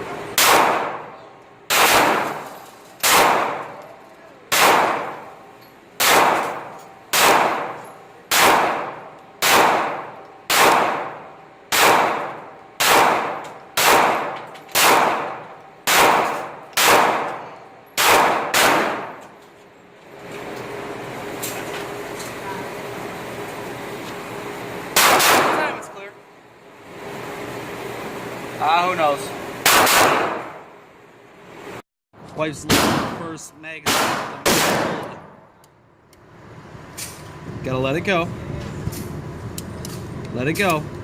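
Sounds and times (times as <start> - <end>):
pistol shots with ringing echo: 0.4 - 3.8, 4.5 - 5.4, 6.0 - 19.3, 25.0 - 25.9, 29.6 - 30.7, 32.7 - 35.5.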